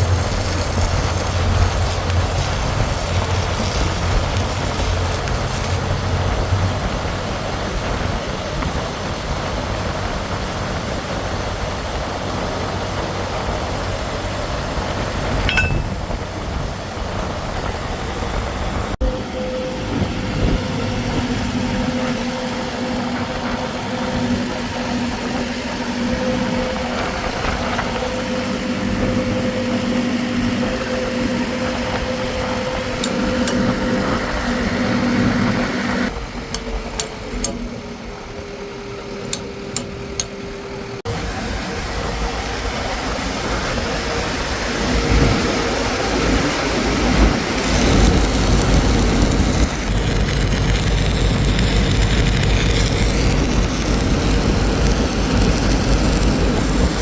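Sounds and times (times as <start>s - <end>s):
engine humming: 0.0s - 57.0s.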